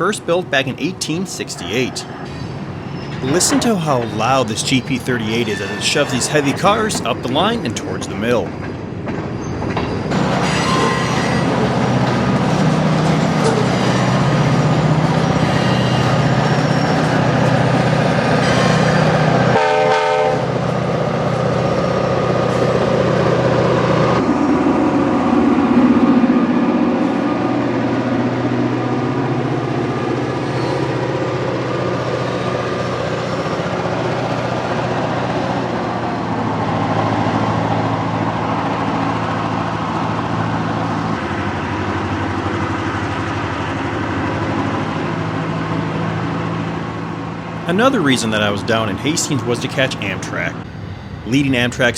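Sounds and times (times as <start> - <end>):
locomotive diesel engine working hard: 0.0 - 8.5
locomotive horn blast: 3.2 - 8.5, 19.5 - 20.6.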